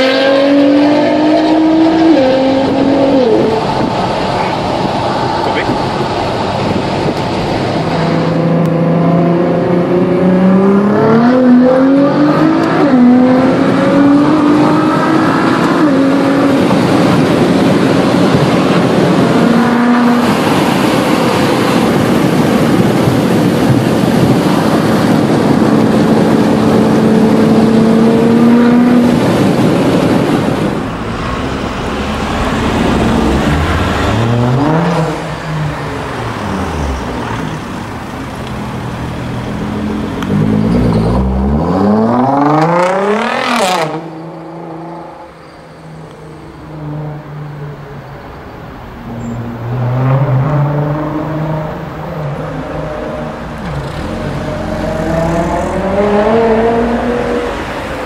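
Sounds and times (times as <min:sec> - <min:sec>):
engine revving: 0:00.0 - 0:04.6, 0:07.9 - 0:22.0, 0:25.5 - 0:29.5, 0:30.4 - 0:37.4, 0:38.7 - 0:45.3, 0:49.6 - 0:58.0
car engine accelerating: 0:00.0 - 0:47.6, 0:49.0 - 0:58.0
wind and road noise: 0:00.0 - 0:58.0.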